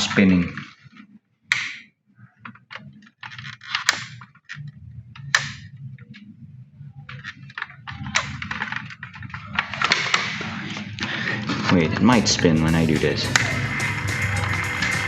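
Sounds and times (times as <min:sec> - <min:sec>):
clicks and handling noises: 0:00.2 - 0:11.8.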